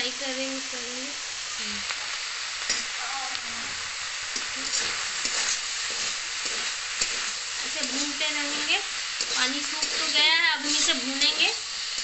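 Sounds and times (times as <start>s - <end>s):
prawns sizzling in hot oil: 0.0s - 12.0s
metal spatula scraping pan: 4.4s - 12.0s.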